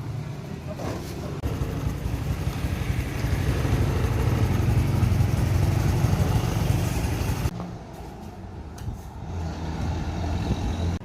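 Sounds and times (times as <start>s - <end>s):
motorcycle engine running: 1.4s - 7.5s.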